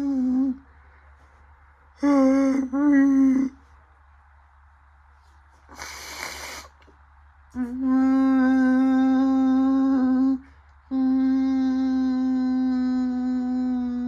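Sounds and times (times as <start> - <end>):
washing machine hiss: 5.7 - 6.8.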